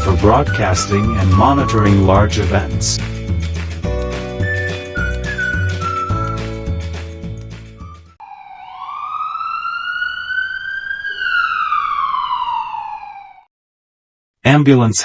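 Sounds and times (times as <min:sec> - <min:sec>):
emergency vehicle siren wailing: 0:00.0 - 0:03.0, 0:08.1 - 0:13.5
music track: 0:00.0 - 0:08.1.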